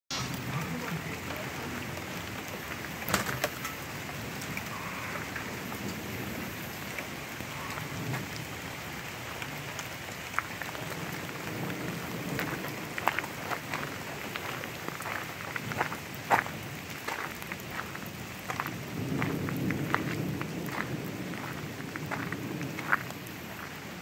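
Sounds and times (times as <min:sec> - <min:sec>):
raindrops hitting close by: 0:00.1 - 0:24.0
steady rain falling: 0:00.1 - 0:24.0
low thunder: 0:10.7 - 0:15.9, 0:18.5 - 0:23.8.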